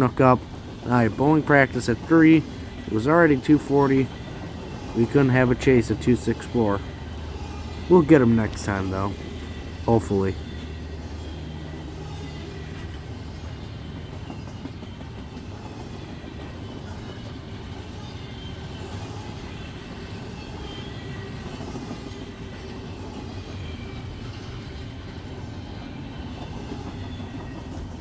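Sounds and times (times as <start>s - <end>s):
freight train rumbling on rails: 0.0s - 28.0s.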